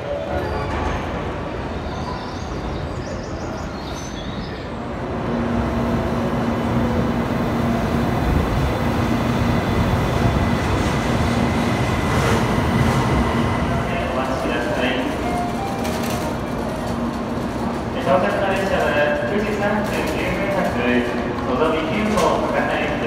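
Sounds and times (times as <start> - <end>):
train rumbling slowly: 0.0 - 23.0
platform noise: 12.7 - 18.5.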